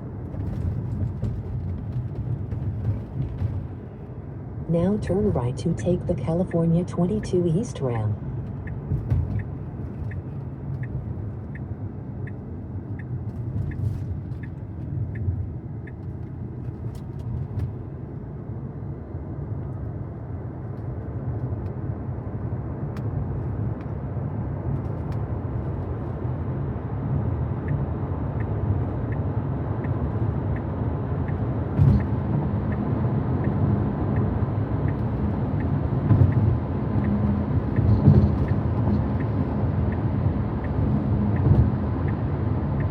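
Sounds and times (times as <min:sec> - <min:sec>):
road and tyre noise in car: 0:00.0 - 0:42.9
turn signal ticking: 0:04.7 - 0:17.9, 0:27.0 - 0:42.9.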